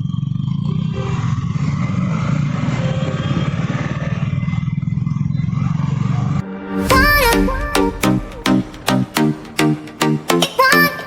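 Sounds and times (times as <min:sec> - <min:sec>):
motorcycle engine running: 0:00.0 - 0:06.4.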